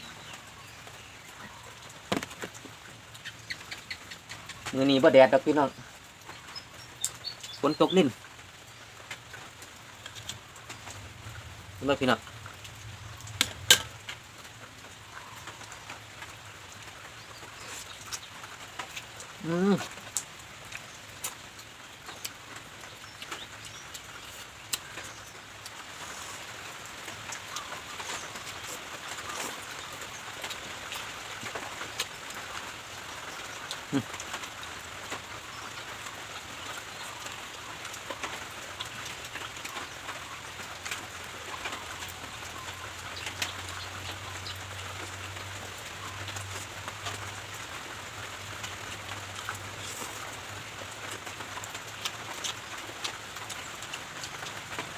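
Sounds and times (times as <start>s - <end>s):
light rain falling: 0.0s - 54.9s
raindrops ticking on surfaces: 0.0s - 54.9s.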